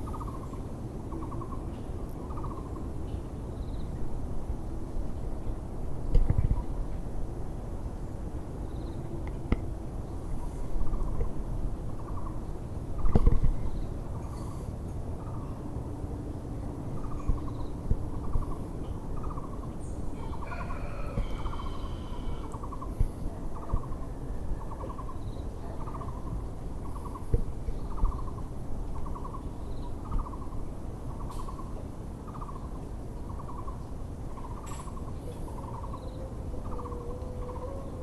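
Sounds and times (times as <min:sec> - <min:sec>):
small birds chirping: 0:22.4 - 0:38.0.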